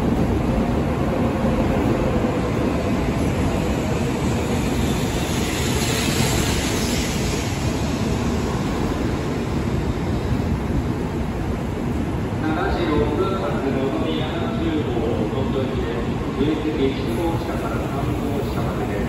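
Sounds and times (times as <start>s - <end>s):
train wheels rumbling on rails: 0.0s - 19.0s
train hiss: 3.2s - 10.1s, 16.8s - 19.0s.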